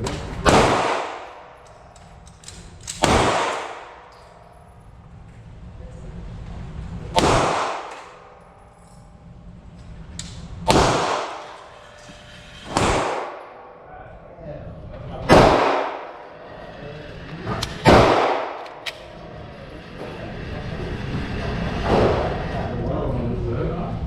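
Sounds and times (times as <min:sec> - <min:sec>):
pistol shots with ringing echo: 0:00.4 - 0:01.8, 0:02.9 - 0:04.1, 0:07.1 - 0:08.3, 0:10.7 - 0:11.6, 0:12.6 - 0:13.8, 0:15.3 - 0:16.2, 0:17.8 - 0:19.1.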